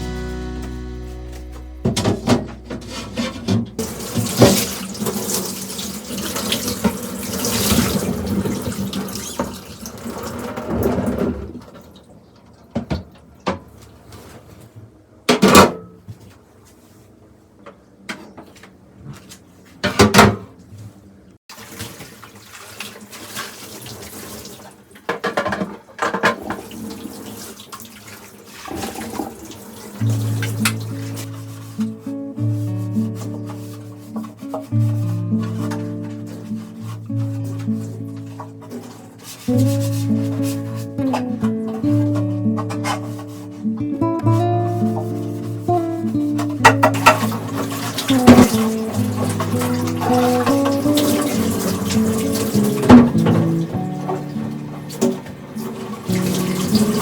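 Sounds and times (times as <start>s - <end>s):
items being rinsed and handled: 0.0s - 57.0s
things clattering in sink: 0.7s - 16.4s, 18.0s - 20.6s, 21.5s - 32.0s, 32.7s - 57.0s
tap water running into sink: 1.8s - 13.6s, 21.5s - 31.6s, 44.3s - 57.0s.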